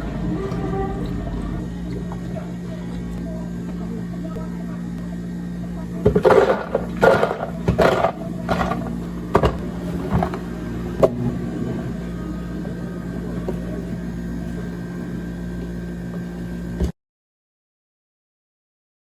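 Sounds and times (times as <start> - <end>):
steady machine hum: 0.0 - 17.0
clatter of cups: 6.0 - 10.4.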